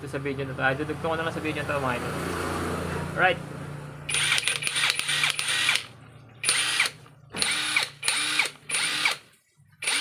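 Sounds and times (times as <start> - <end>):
impact wrench motor whine: 4.1 - 9.2.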